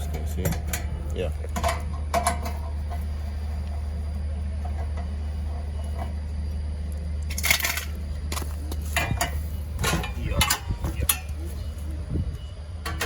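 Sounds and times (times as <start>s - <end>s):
metal tools clanking: 0.0s - 3.1s, 7.3s - 13.0s
steady low hum: 0.0s - 13.0s.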